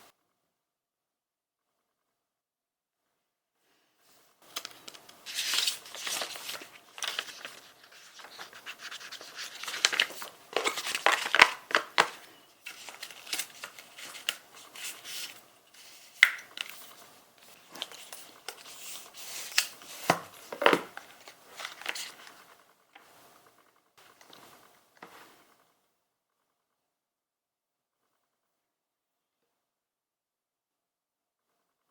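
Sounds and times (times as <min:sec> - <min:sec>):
material rustling and crinkling: 0:04.1 - 0:25.6.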